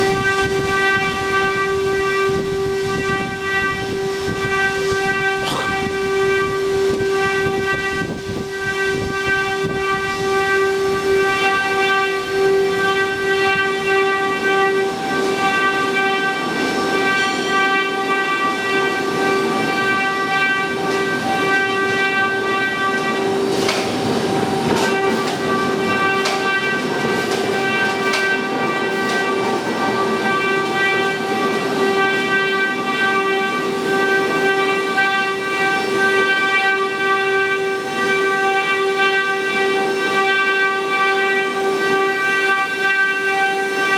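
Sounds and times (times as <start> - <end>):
machining noise: 23.2 - 43.9.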